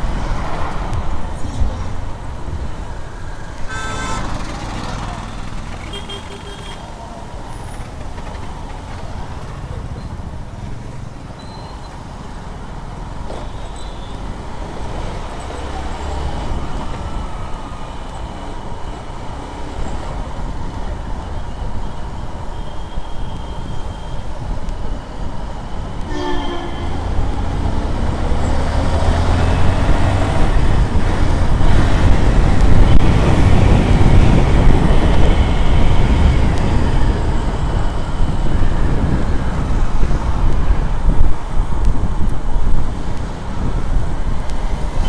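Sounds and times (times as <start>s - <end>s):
motorcycle engine and road rumble: 0.0s - 45.0s
vehicle horn honking: 3.7s - 4.6s, 5.8s - 6.9s, 26.1s - 27.1s.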